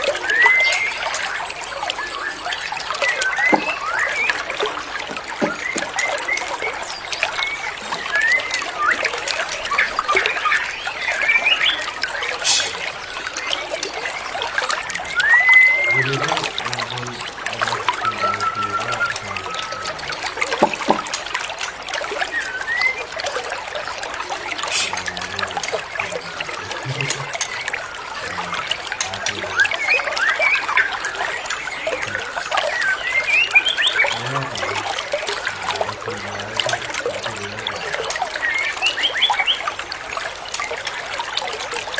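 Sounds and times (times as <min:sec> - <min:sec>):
songbirds chirping: 0:00.0 - 0:41.9
trickle of water: 0:00.0 - 0:41.9
bird singing whistles: 0:00.1 - 0:01.4, 0:02.0 - 0:04.5, 0:05.1 - 0:12.7, 0:15.0 - 0:16.6, 0:17.7 - 0:21.0, 0:22.3 - 0:23.1, 0:32.7 - 0:34.2.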